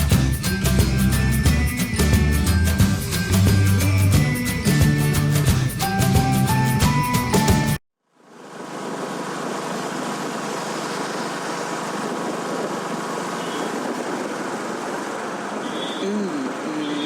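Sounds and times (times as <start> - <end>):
wind and motorcycle road noise: 9.5 - 17.0.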